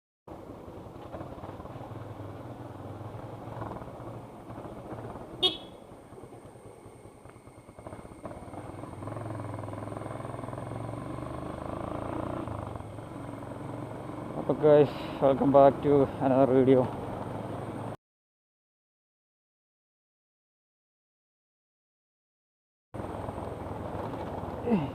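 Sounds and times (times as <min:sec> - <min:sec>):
vehicle engine running: 0:00.3 - 0:18.0, 0:23.0 - 0:24.9.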